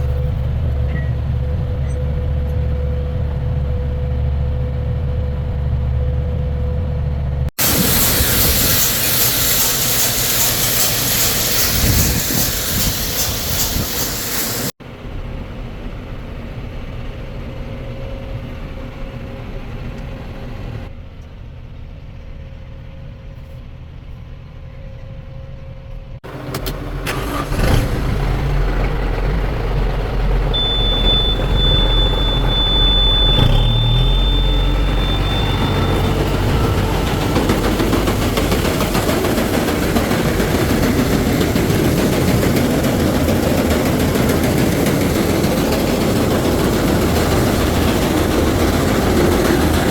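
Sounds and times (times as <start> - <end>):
farm machinery engines running: 0.0 - 20.8, 26.2 - 49.9
steady high tone: 30.6 - 39.0.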